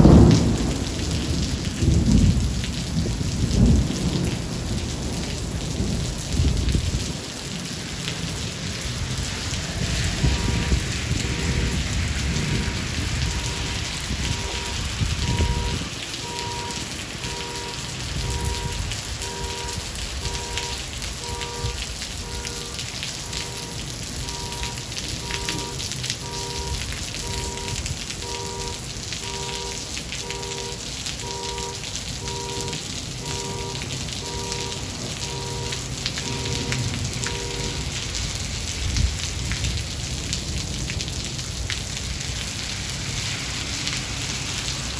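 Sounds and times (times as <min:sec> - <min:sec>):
low thunder rumble: 0:00.0 - 0:07.3, 0:08.1 - 0:42.4
heavy rain: 0:00.0 - 0:44.9
soft repeating tones: 0:13.3 - 0:37.8.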